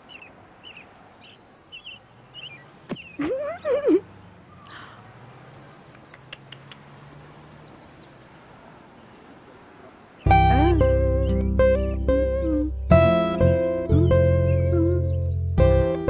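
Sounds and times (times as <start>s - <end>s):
small clinks: 1.2s - 2.5s, 3.2s - 10.3s, 12.4s - 12.8s, 14.4s - 16.0s
high tinkling chimes: 1.2s - 2.6s, 3.3s - 6.4s, 7.2s - 9.0s, 9.6s - 13.0s, 14.2s - 16.0s
acoustic guitar music: 10.2s - 16.0s.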